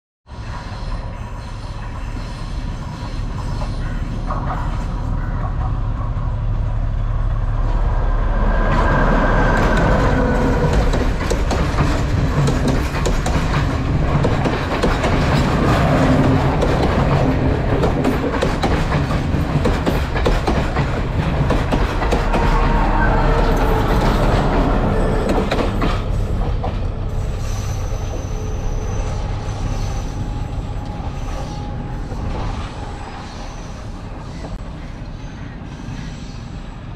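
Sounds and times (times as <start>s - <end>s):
passenger train passing: 0.3s - 36.9s
train wheels clattering: 8.7s - 32.6s.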